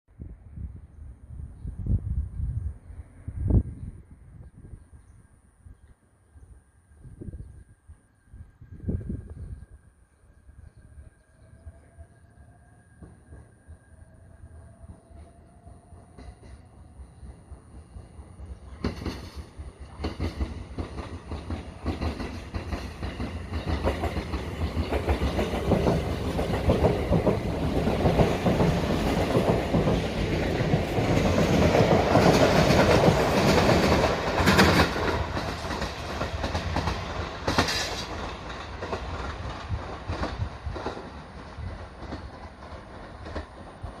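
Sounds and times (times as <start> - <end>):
electric train passing: 0.3 - 44.0
wheels clacking over rail joints: 18.7 - 44.0.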